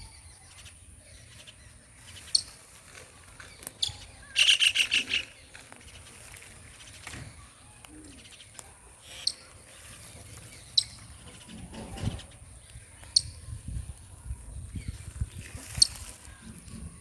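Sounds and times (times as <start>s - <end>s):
baby bird chirping: 3.4s - 5.5s, 9.0s - 13.8s, 14.6s - 16.5s.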